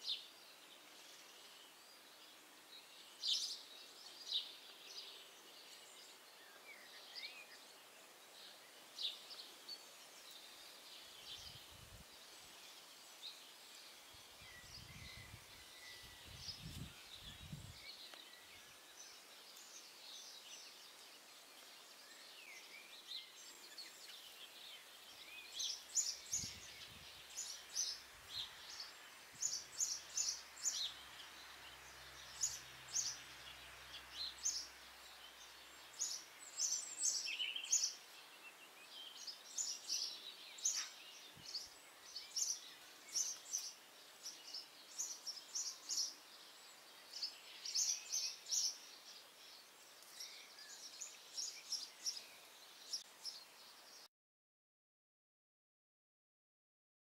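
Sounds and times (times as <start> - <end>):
birds chirping and twittering: 0.0 - 54.1
faint steady hiss: 0.0 - 54.1.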